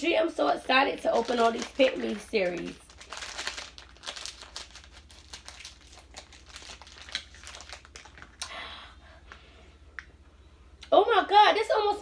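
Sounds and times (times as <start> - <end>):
plastic packaging crinkling: 0.6 - 8.6.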